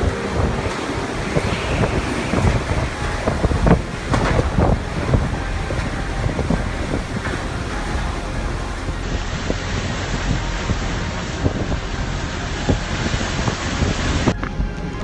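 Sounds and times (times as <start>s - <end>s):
rushing water and waves: 0.0s - 15.0s
wind buffeting microphone: 0.0s - 15.0s.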